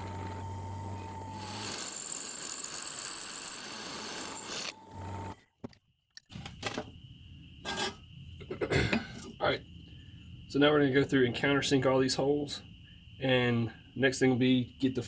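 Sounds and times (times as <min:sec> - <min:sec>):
electric drill cutting steel: 0:00.0 - 0:05.4.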